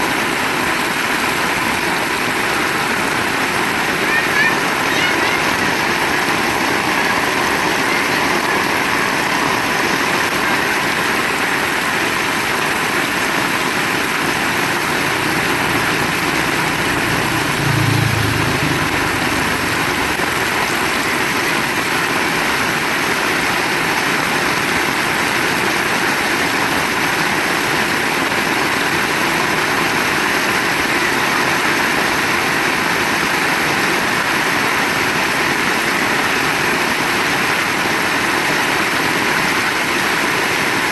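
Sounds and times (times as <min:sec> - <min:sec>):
heavy rain pouring: 0:00.0 - 0:40.9
low rumble: 0:14.8 - 0:21.0.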